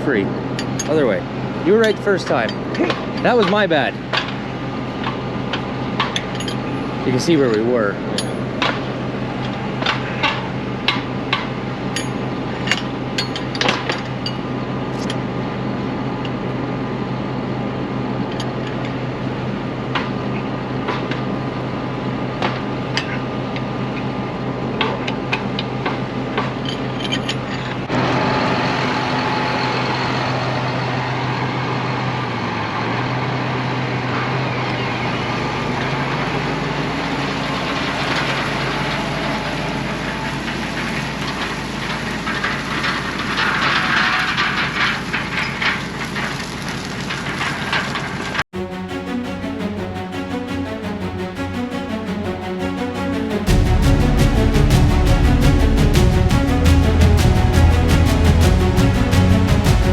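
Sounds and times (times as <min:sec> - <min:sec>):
tractor engine running: 0:00.0 - 0:46.2, 0:48.6 - 0:59.9
metal clinks and taps: 0:06.0 - 0:06.6.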